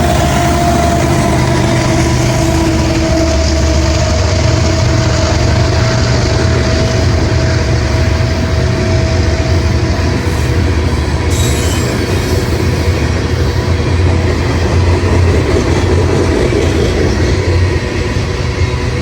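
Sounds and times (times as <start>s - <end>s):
train wheels rumbling on rails: 0.0s - 19.0s
high-pitched wheel squeal: 10.2s - 13.4s.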